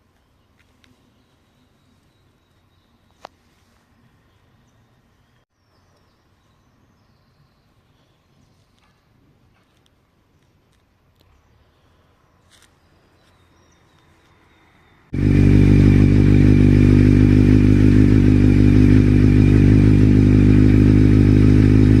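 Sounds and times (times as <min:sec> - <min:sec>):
motorcycle engine running: 0:15.1 - 0:22.0.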